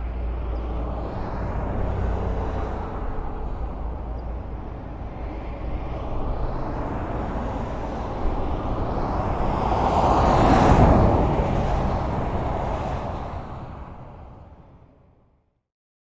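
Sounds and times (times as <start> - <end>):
highway traffic: 0.0 - 15.4
vehicle passing loudly: 6.1 - 14.6.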